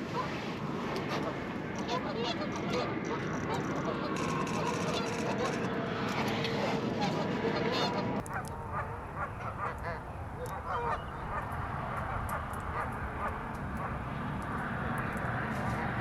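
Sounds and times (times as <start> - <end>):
waterfowl calling: 7.6 - 16.0.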